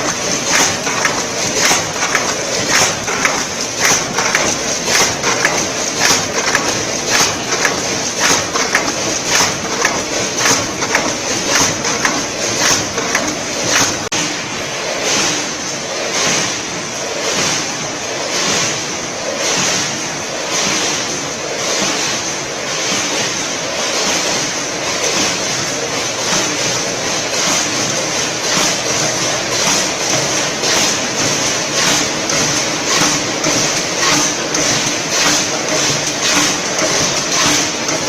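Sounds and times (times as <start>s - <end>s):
filling machine running: 0.0s - 38.0s.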